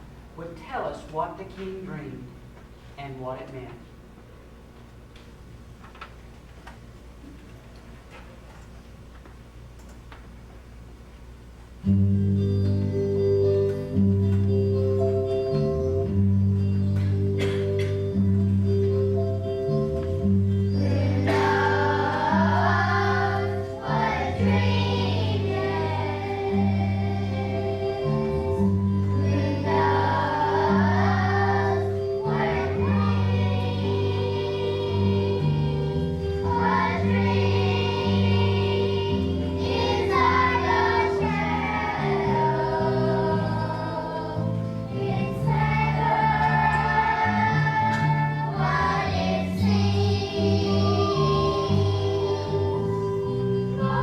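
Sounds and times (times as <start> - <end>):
held accompaniment chords: 11.0 - 54.0
children's choir singing: 20.1 - 54.0.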